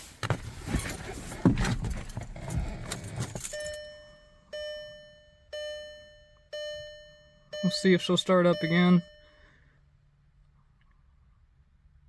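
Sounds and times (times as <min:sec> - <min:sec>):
keys jangling and clicking: 0:00.6 - 0:03.8
car warning chime dinging: 0:03.4 - 0:09.7.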